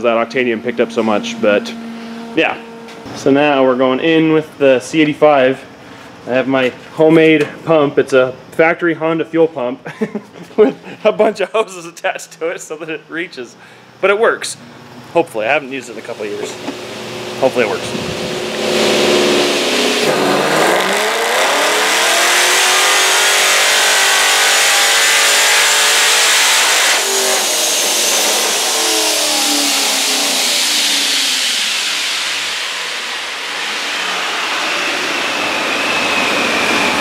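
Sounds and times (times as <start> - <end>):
car engine full-throttle revving: 0.0 - 3.1, 16.1 - 37.0
dyno rollers winding down: 0.0 - 3.5, 15.6 - 37.0
supercharger whine: 0.0 - 6.5, 12.1 - 37.0.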